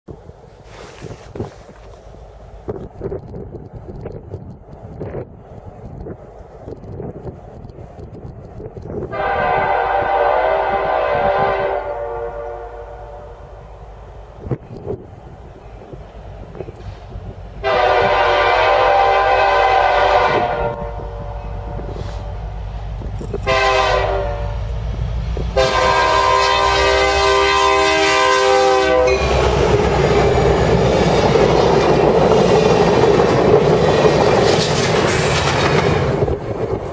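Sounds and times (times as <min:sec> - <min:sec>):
train rumbling past: 0:00.1 - 0:36.9
locomotive air horn blasts: 0:09.1 - 0:13.5, 0:17.6 - 0:22.4, 0:23.4 - 0:24.7, 0:25.5 - 0:29.8
wheels clacking over rail joints: 0:29.1 - 0:36.9.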